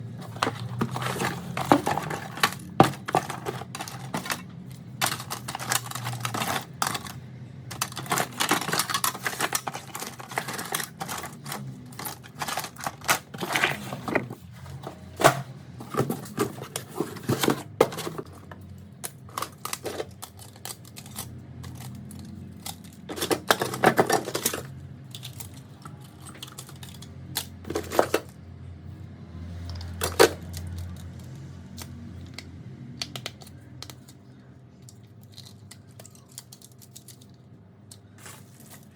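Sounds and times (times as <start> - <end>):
small tools clicking and scraping: 0.0 - 15.0, 15.8 - 28.4, 29.6 - 38.9
low steady hum: 0.0 - 38.9.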